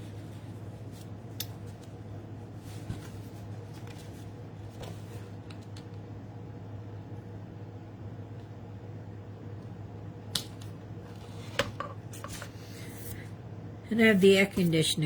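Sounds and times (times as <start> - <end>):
air conditioning hum: 0.0 - 15.0.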